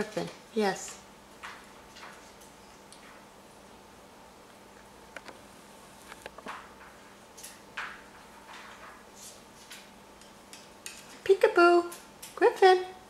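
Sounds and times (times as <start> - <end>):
parrot rummaging in toys: 6.1 - 9.9.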